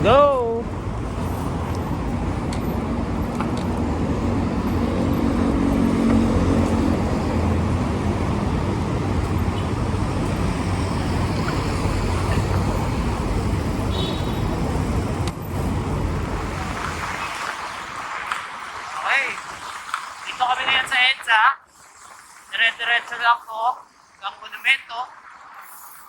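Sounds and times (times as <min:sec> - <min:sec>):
engine hum: 0:00.0 - 0:18.9
road traffic noise: 0:00.0 - 0:26.0.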